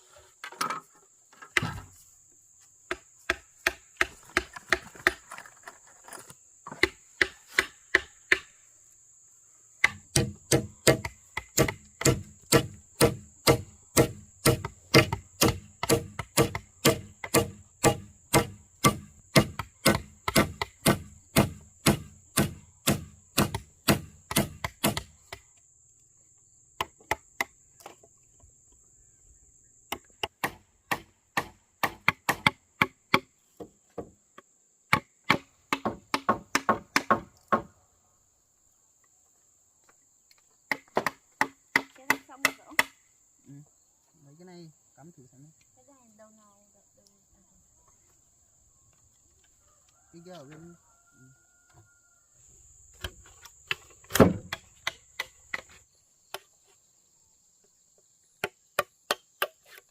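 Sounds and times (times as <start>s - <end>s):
wood being chopped: 1.5s - 1.9s, 2.9s - 5.4s, 6.7s - 8.5s, 9.8s - 25.5s, 29.9s - 34.1s, 34.9s - 37.7s, 40.7s - 43.0s, 53.0s - 55.7s, 58.4s - 59.9s.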